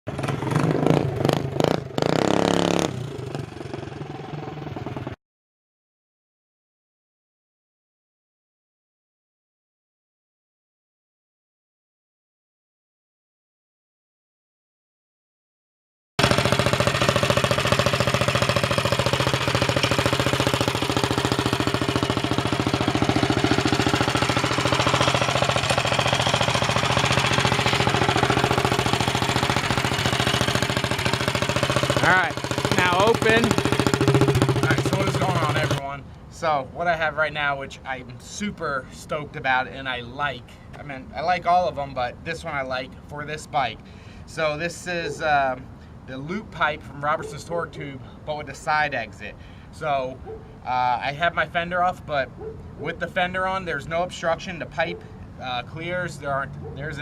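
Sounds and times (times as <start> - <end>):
minibike engine revving: 0.1 - 5.2, 16.2 - 35.8.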